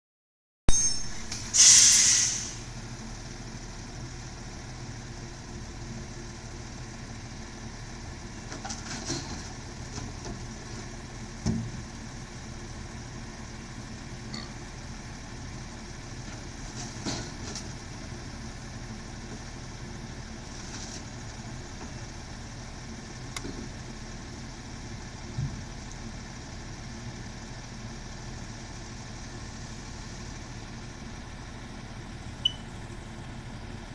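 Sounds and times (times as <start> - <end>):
diesel engine idling: 1.1 - 33.9
air brake hiss: 1.3 - 2.8.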